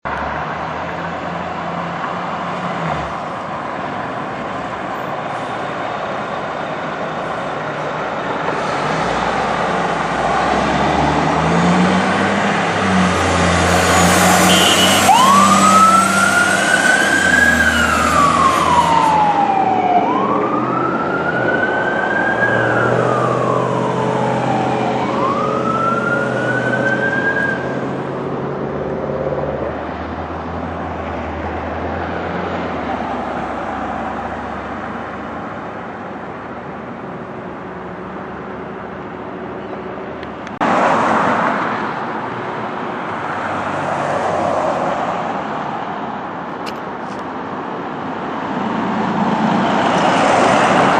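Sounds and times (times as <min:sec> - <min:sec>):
heavy vehicle engine: 0:00.0 - 0:50.9
traffic noise: 0:00.0 - 0:50.9
fire engine siren: 0:04.7 - 0:28.4.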